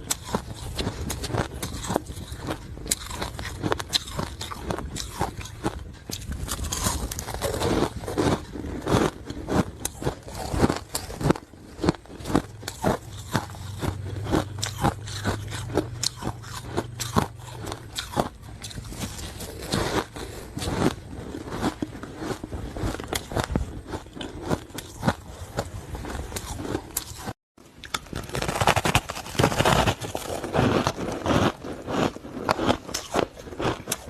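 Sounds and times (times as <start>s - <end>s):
ice being chewed and crunched: 0.0s - 34.0s
steady low hum: 11.4s - 26.2s.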